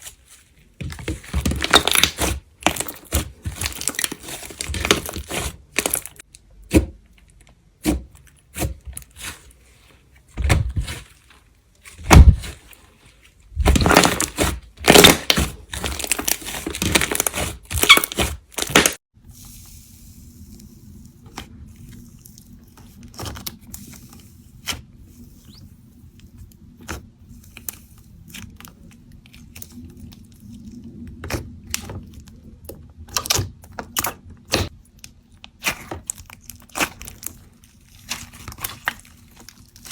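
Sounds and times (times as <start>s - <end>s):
clay slime clicks and crackles: 26.2s - 39.9s.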